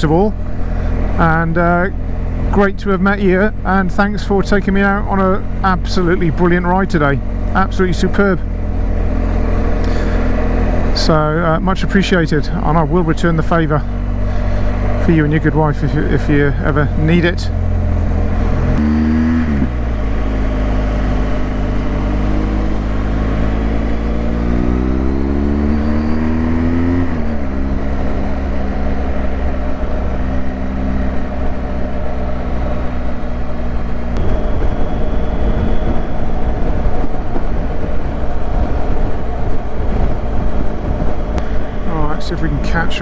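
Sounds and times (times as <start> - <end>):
motorcycle engine revving: 0.0 - 43.0
wind rush: 34.0 - 43.0.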